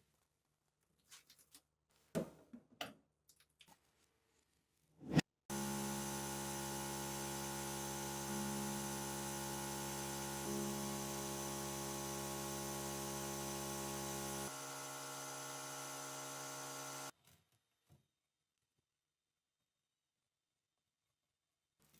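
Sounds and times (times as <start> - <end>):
electric power tool motor humming: 5.5 - 17.1.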